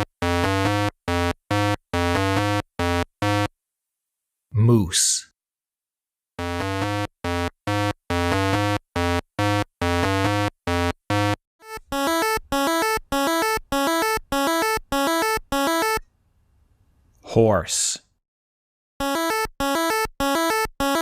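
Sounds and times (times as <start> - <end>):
synthesizer melody: 6.4 - 16.0, 19.0 - 21.0.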